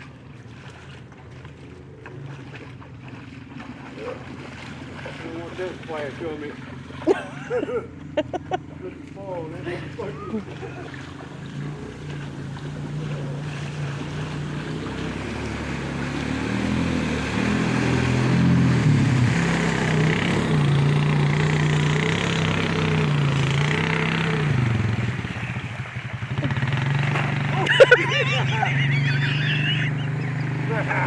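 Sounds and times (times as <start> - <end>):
quad engine revving: 2.2 - 31.0.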